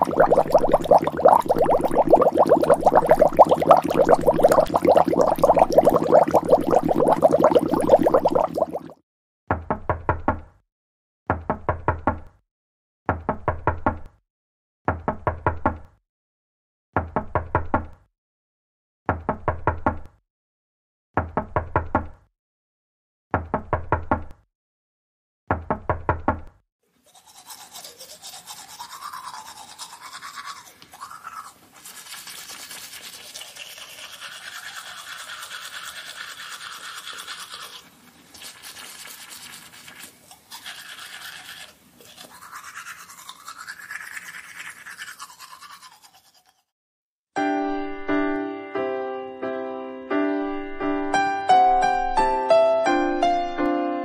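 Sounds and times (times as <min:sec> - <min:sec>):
person brushing teeth: 0:00.0 - 0:08.9, 0:27.0 - 0:46.7.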